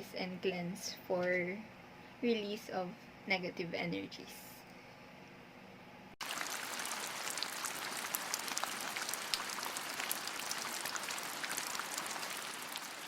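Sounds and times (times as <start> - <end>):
steady rain falling: 6.2 - 13.0.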